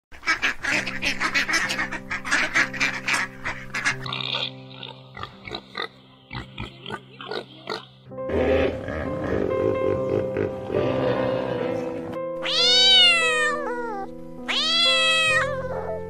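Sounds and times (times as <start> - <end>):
ducks quacking: 0.1 - 11.9.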